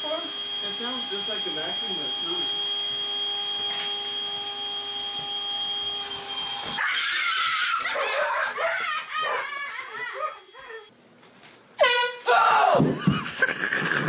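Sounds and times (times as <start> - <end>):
whirring hum: 0.0 - 6.8, 7.8 - 11.0
high wavering cries: 6.8 - 10.9.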